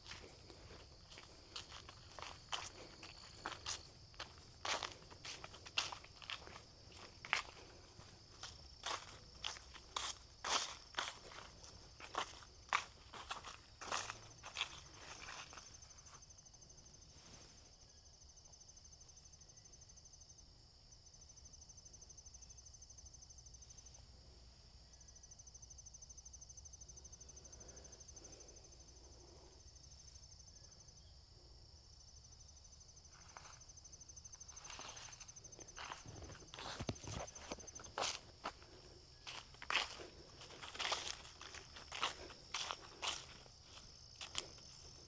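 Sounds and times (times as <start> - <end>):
footsteps: 0.0 - 15.6, 34.6 - 45.0
insects trilling: 0.0 - 45.0.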